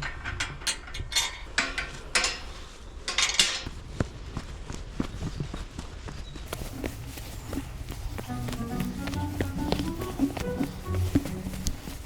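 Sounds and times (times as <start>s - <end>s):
footsteps crunching on path: 3.6s - 12.0s.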